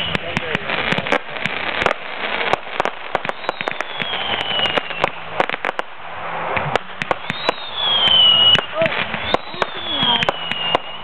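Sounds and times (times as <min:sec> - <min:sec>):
fireworks cracking and popping: 0:00.0 - 0:11.0
firework whistle sliding down: 0:03.2 - 0:05.2, 0:07.0 - 0:11.0.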